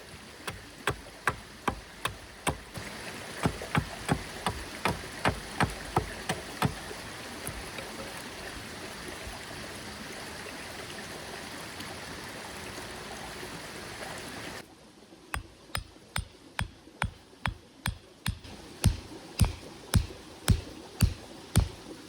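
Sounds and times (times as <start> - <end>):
mountain stream flowing: 0.0 - 22.0
sharp knocks: 0.4 - 2.7, 3.4 - 6.8, 15.4 - 21.8.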